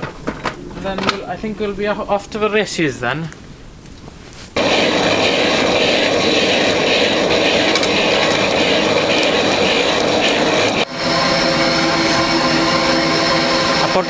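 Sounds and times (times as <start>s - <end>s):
electric blower rushing air: 4.6s - 14.0s.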